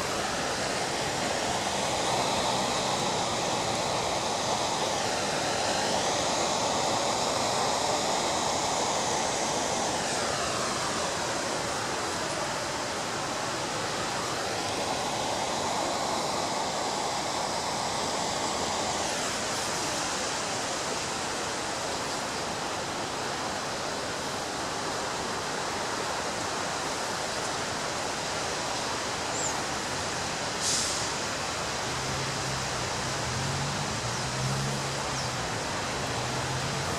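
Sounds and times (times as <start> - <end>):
short hiss: 30.6 - 31.3.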